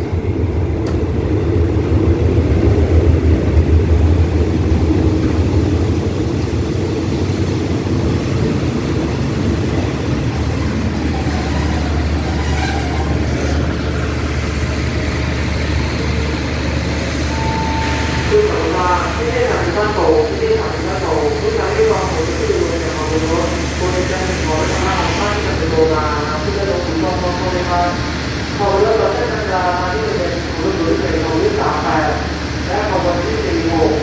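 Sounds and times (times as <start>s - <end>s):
diesel locomotive engine rumble: 0.0s - 34.0s
train carriages rolling: 8.2s - 19.2s.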